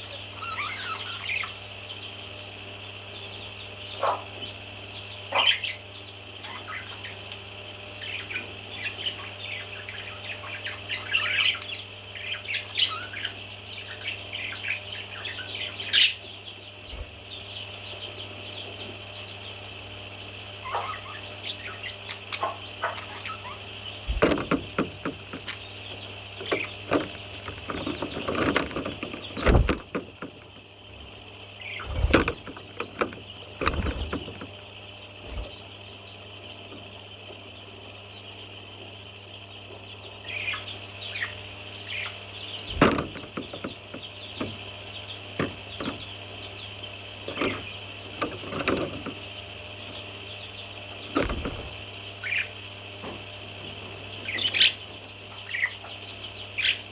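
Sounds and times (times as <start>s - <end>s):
parrot chicks chirping: 0.0s - 56.9s
sharp knocks and thumps: 24.1s - 25.6s, 26.4s - 30.6s, 31.9s - 34.6s, 42.7s - 44.6s, 51.1s - 51.8s.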